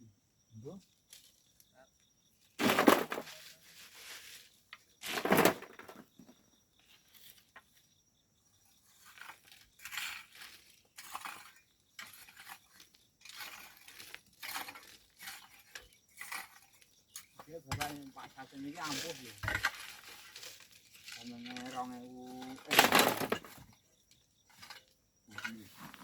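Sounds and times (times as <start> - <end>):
hand tools scraping on stone: 8.8 - 23.8, 24.4 - 26.0.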